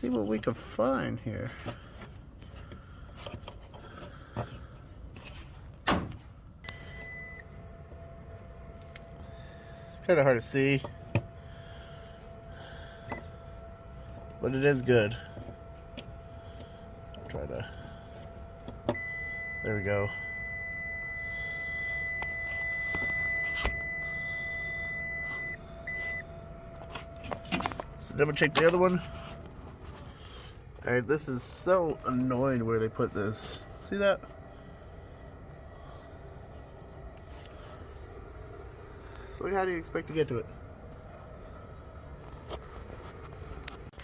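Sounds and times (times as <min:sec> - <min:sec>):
multimeter beep: 0:06.6 - 0:07.6, 0:17.0 - 0:29.4
faint steady tone: 0:06.6 - 0:42.3.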